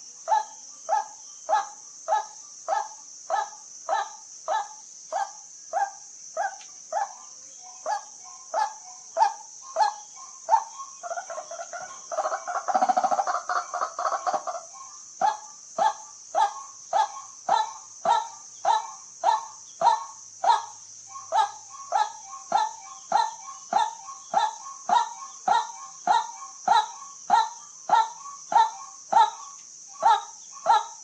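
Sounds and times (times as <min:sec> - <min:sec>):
waterhen calling: 0:07.8 - 0:31.0.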